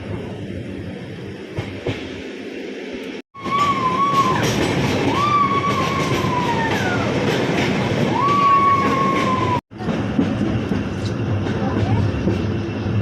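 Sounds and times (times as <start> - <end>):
train rumbling on track: 0.0 - 13.0
train wheels squealing: 3.4 - 7.4.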